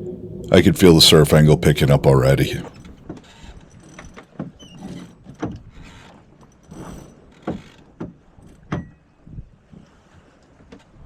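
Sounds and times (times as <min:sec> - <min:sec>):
water or wind rushing: 0:00.0 - 0:03.0
sailboat rigging knocks and clicks: 0:03.1 - 0:11.0.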